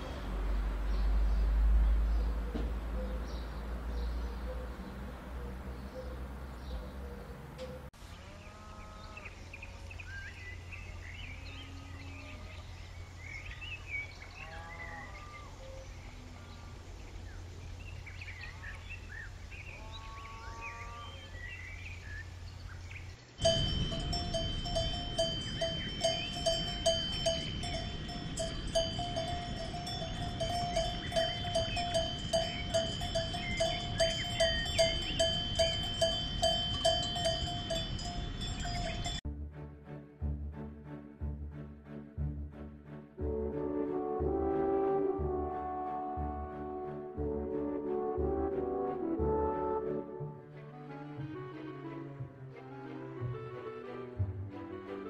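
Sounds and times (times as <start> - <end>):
birds chirping: 0.0 - 39.2
low steady rumble: 21.5 - 39.2
cowbells clanking: 23.4 - 39.2.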